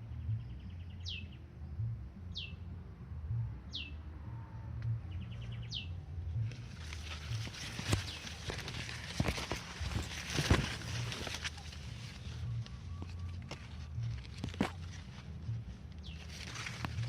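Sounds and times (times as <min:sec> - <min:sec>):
steady low rumble: 0:00.0 - 0:17.0
crackling rustling noise: 0:06.4 - 0:17.0.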